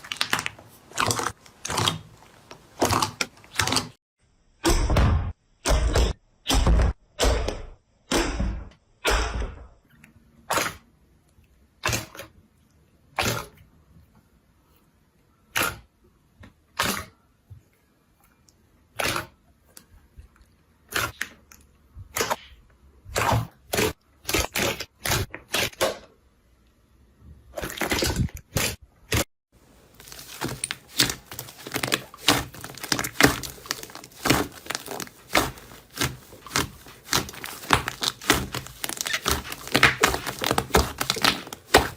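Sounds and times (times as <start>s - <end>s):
slime popping and crackling: 0.0s - 4.0s, 29.8s - 41.9s.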